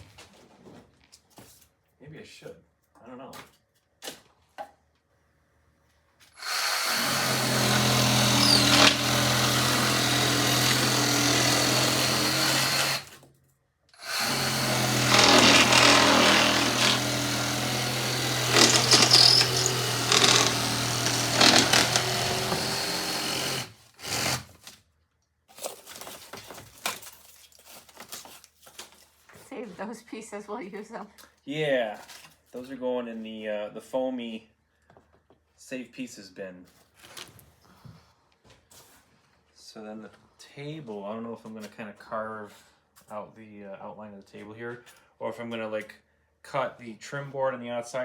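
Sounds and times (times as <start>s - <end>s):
reciprocating saw cutting foam: 6.3s - 13.2s, 14.0s - 24.6s.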